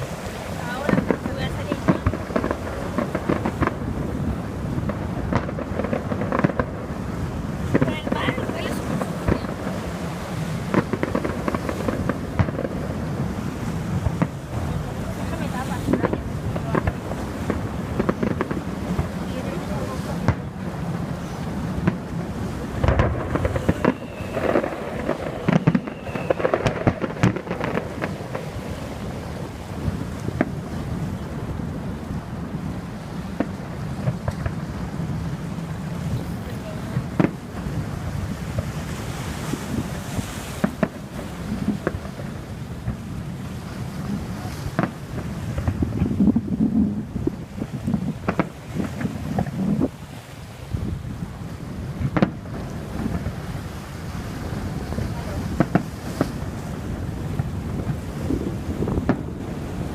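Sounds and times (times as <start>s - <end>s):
fireworks bangs and crackles: 0.0s - 59.9s
wind and surf rumble: 0.0s - 59.9s.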